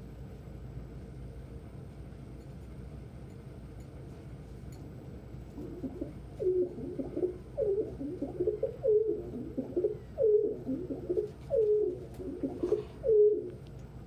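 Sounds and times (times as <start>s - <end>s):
pigeon cooing: 5.5s - 13.6s.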